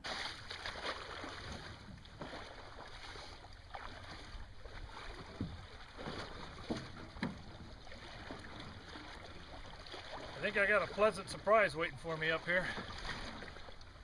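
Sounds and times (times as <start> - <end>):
boat knocks and splashes: 0.0 - 14.0
water sloshing: 0.0 - 14.0.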